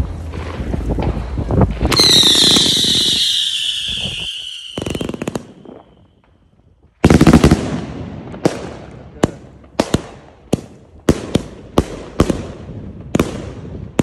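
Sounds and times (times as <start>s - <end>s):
firework crackling: 0.0s - 6.2s
firework bangs: 0.0s - 6.4s, 7.0s - 14.0s
firework whistle falling in pitch: 1.9s - 6.1s.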